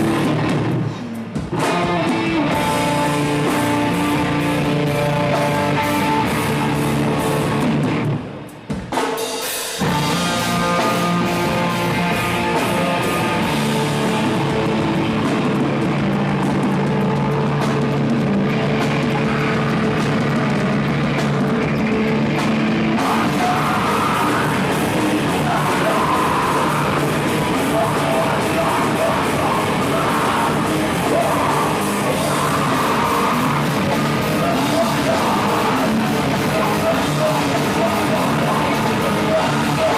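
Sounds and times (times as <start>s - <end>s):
live rock band playing: 0.0s - 39.9s
person singing or shouting: 22.9s - 39.9s.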